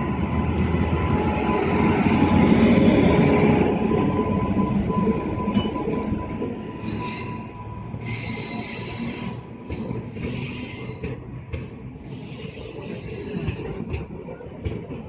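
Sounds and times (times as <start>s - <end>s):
train wheels rumbling on rails: 0.0s - 15.0s
wheel squeal: 6.8s - 11.2s.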